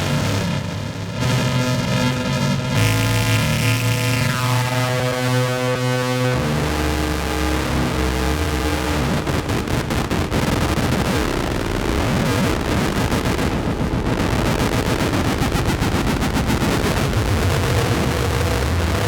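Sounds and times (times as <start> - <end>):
deep low hum: 0.0 - 5.2
synthesized drone: 0.0 - 19.0.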